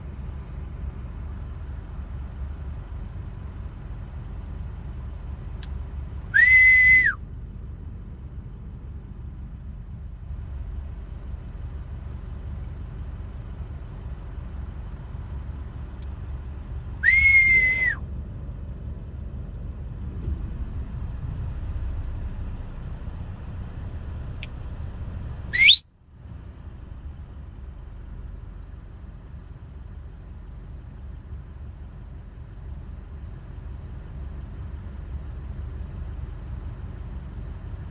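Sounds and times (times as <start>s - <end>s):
short loud whistles: 6.4s - 7.2s, 17.0s - 18.0s, 25.5s - 25.9s
steady low rumble: 18.2s - 25.6s.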